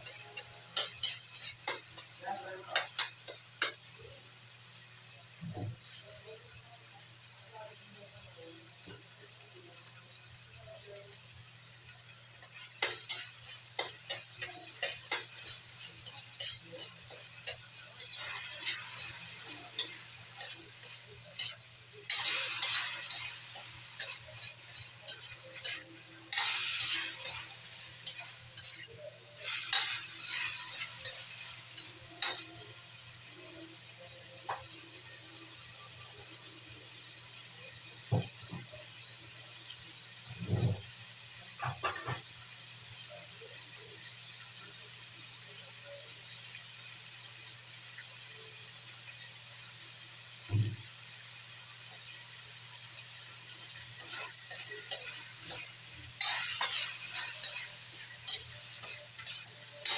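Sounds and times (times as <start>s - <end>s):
utensil scraping a wok: 0.0s - 4.2s, 9.8s - 34.6s, 51.8s - 59.9s
chicken sizzling in a wok: 0.0s - 59.9s.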